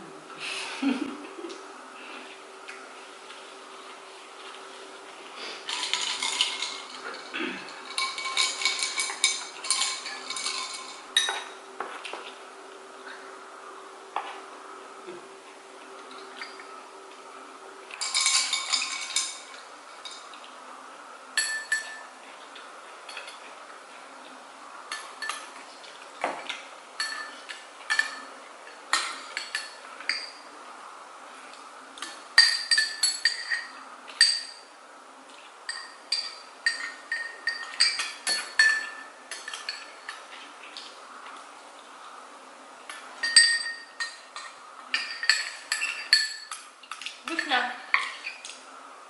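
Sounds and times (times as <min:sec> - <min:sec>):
cutlery and dishes clinking: 0:05.7 - 0:12.1, 0:18.0 - 0:20.4, 0:21.4 - 0:22.1, 0:24.9 - 0:25.6, 0:26.2 - 0:30.5, 0:32.0 - 0:34.7, 0:35.7 - 0:40.3, 0:42.9 - 0:48.6.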